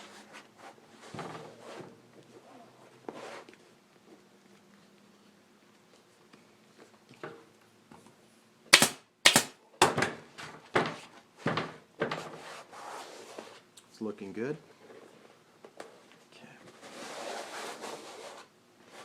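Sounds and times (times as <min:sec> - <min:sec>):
staple gun firing: 0:08.8 - 0:09.5.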